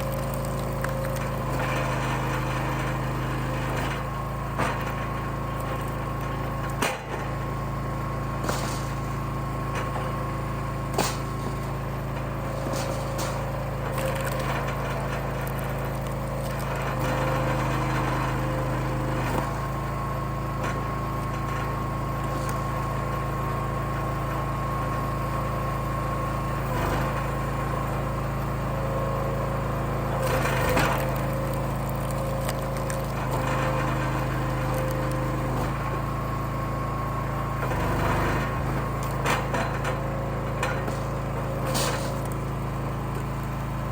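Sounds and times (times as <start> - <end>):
wood cracking as it splits: 0.0 - 1.9, 10.0 - 17.3, 30.2 - 35.8
log splitter engine hum: 0.0 - 43.9.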